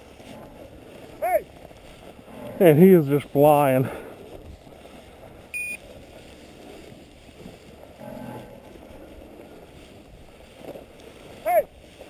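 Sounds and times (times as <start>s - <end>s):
outdoor wind: 0.0s - 12.0s
high-pitched electronic beep: 5.6s - 5.8s.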